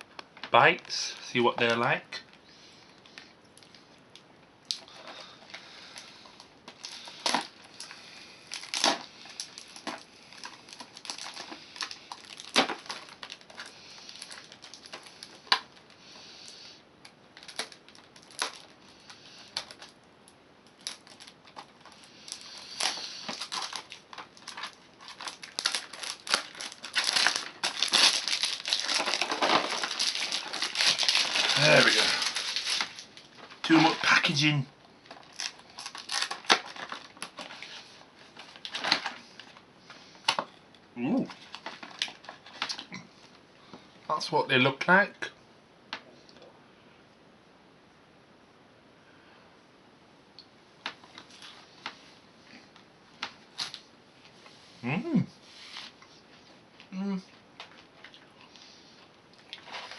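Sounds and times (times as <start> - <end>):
plastic packaging crinkling and tearing: 4.7 - 20.0, 20.6 - 39.6, 41.2 - 42.9, 50.9 - 52.0, 53.2 - 53.9, 57.6 - 59.9.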